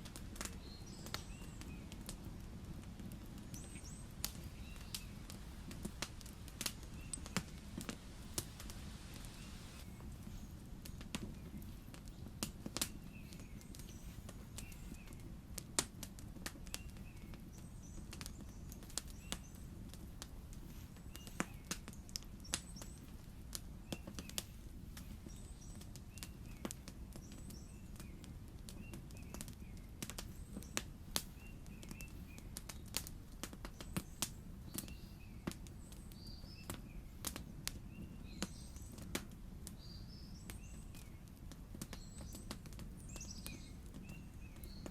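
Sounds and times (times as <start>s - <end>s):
campfire crackling and popping: 0.0s - 44.9s
small birds chirping: 0.0s - 44.9s.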